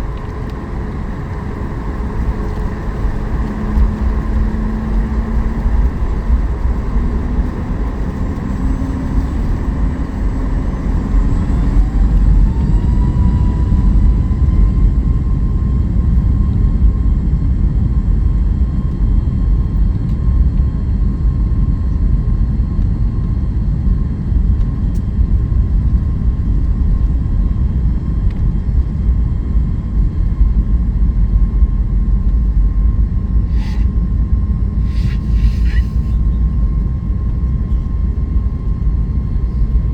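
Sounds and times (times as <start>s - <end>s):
jet engine whine: 0.0s - 39.9s
loud rumble of jet rolling: 0.0s - 39.9s.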